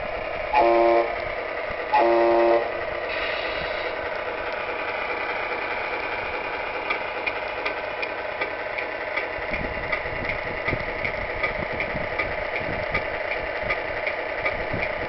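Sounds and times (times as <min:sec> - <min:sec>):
simulated truck engine idling: 0:00.0 - 0:15.0.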